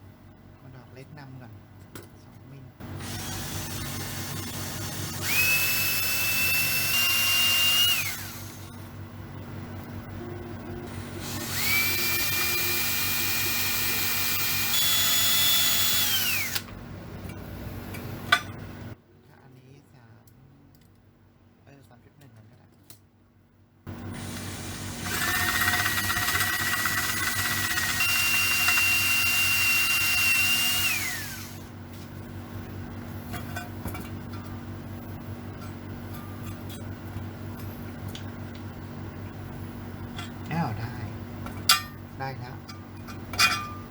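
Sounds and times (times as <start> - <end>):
low hum: 2.8 - 13.7
electric drill motor whining: 2.9 - 8.9, 10.8 - 16.7, 24.0 - 31.8.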